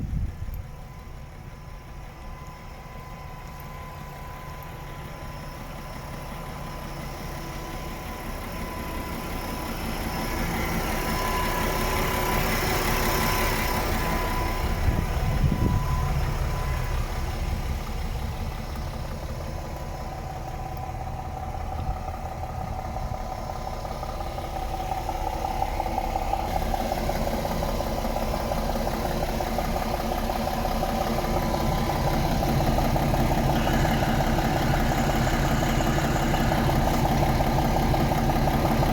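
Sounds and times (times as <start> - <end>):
truck diesel engine running: 0.0 - 38.9.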